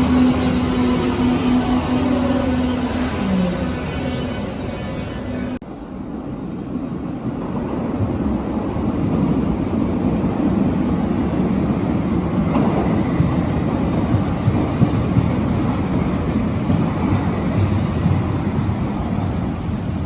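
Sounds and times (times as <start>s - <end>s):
underground train rumbling: 0.0s - 20.0s.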